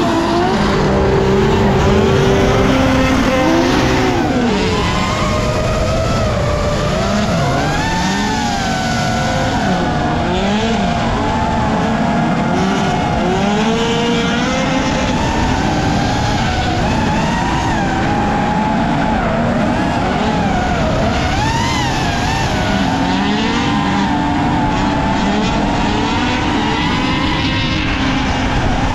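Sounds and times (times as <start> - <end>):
tyre squeal: 0.0 - 5.1
car engines revving: 0.0 - 28.9.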